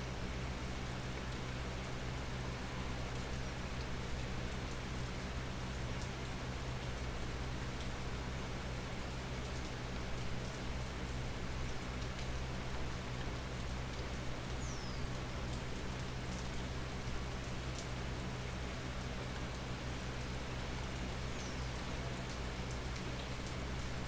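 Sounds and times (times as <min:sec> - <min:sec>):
rain falling: 0:00.1 - 0:24.0.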